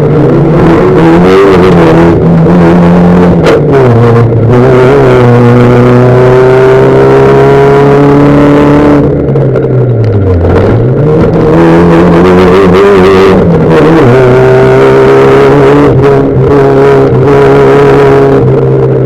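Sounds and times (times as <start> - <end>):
race car engine at high revs: 0.0 - 19.0.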